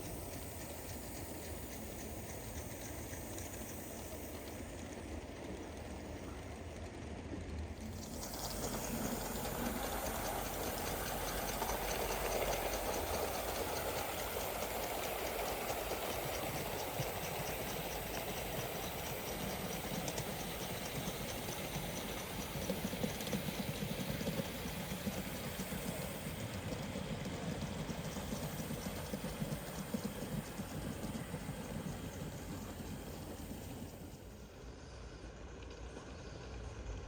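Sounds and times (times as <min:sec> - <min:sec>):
steam hissing: 0:00.0 - 0:06.5, 0:07.8 - 0:34.5
model steam locomotive running: 0:00.0 - 0:37.0
fast patter of light ticks: 0:07.5 - 0:34.1.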